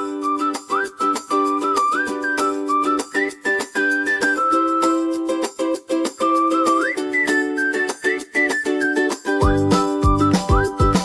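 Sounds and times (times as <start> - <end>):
light beat: 0.0 - 11.0
whistled melody: 0.0 - 11.0
strummed plucked-string chords: 9.2 - 11.0.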